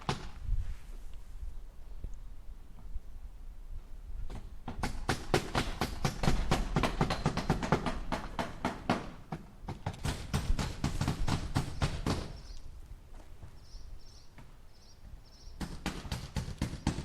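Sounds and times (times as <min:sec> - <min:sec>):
hammer striking nails into wood: 0:04.3 - 0:12.4, 0:15.6 - 0:17.0.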